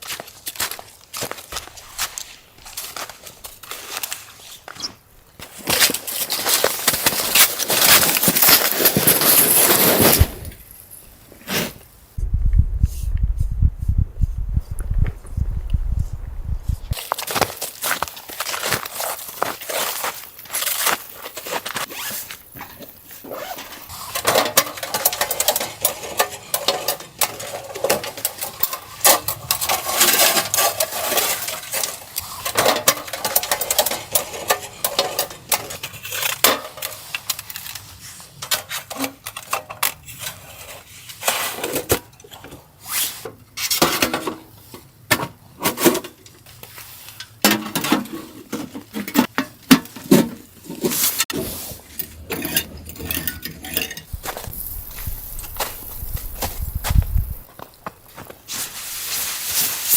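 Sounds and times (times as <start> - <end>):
metal gear clinking and clattering: 5.7 - 11.1, 51.9 - 57.6.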